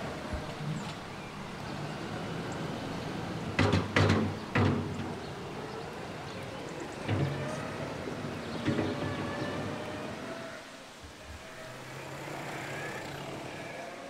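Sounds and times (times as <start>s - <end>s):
tractor engine running: 0.0s - 10.4s
loud metal clanks: 3.4s - 5.4s.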